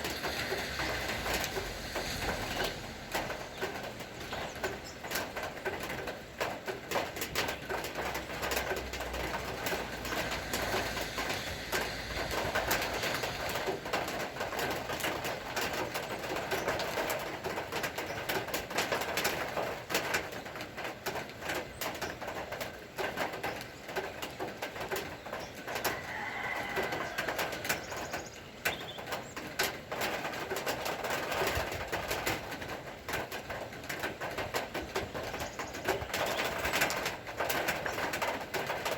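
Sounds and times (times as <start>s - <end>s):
rain patter: 0.0s - 38.9s
birds calling: 26.8s - 29.7s, 34.7s - 37.1s.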